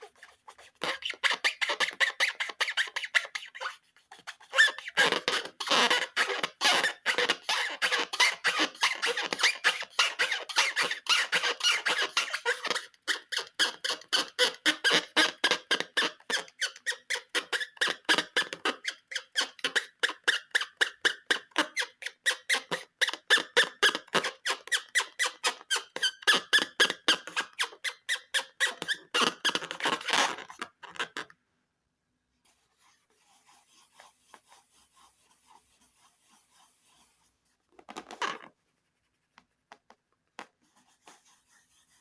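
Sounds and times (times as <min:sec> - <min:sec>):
rubber balloon squeaking: 0:00.0 - 0:31.3, 0:37.8 - 0:38.5.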